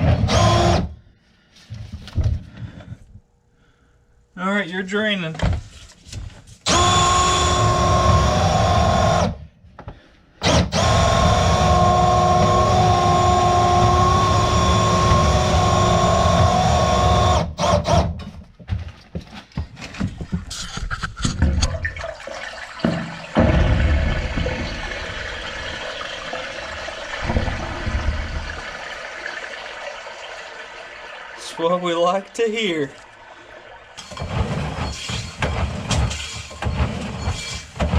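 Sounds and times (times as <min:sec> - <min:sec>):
drain-cleaning machine motor whine: 0:06.7 - 0:09.4, 0:10.7 - 0:17.5
knocks and rattles: 0:22.8 - 0:25.7, 0:27.1 - 0:28.8, 0:34.0 - 0:37.9.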